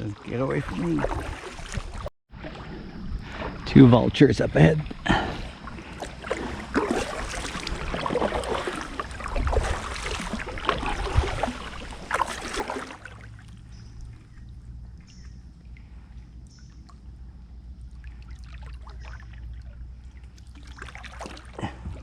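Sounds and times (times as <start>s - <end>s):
paddle splashing in water: 0.0s - 3.7s, 4.8s - 16.2s, 17.9s - 22.0s
faint low hum: 2.4s - 22.0s.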